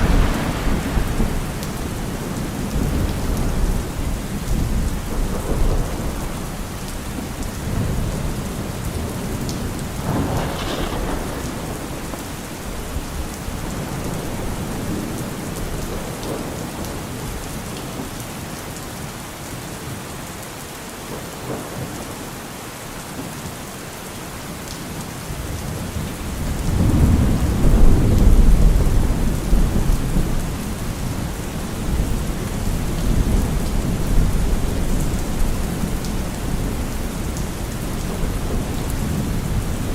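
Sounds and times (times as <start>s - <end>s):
rolling thunder: 0.0s - 17.4s, 25.8s - 39.9s
heavy rain: 0.0s - 39.9s.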